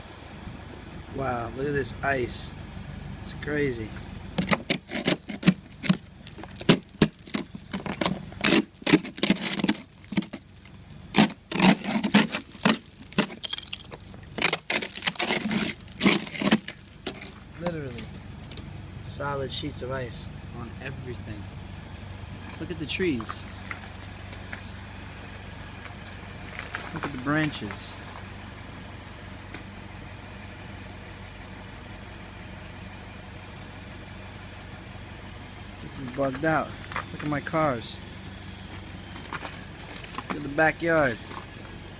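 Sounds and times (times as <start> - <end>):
small engine idling: 0.0 - 41.9
ice crackling and clinking: 4.4 - 17.4.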